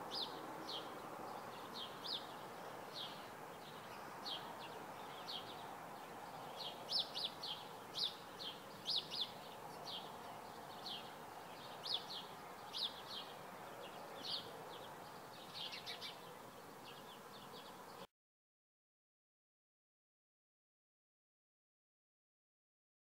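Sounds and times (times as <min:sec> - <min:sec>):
birds chirping: 0:00.0 - 0:18.1.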